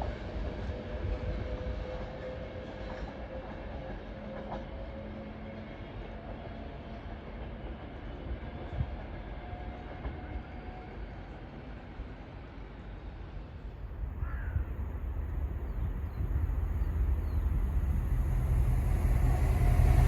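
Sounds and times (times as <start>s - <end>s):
train rumbling on track: 0.0s - 20.0s
faint steady tones: 13.7s - 20.0s.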